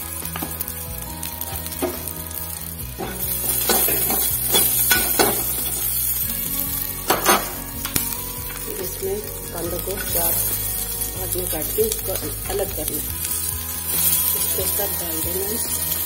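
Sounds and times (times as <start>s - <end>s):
garlic and chillies sizzling in oil: 0.0s - 16.0s
metal spatula scraping a pan: 3.0s - 6.3s.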